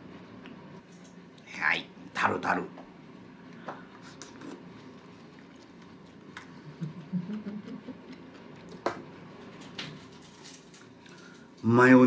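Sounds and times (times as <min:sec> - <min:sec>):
person chewing: 0:04.1 - 0:06.7, 0:07.8 - 0:08.8.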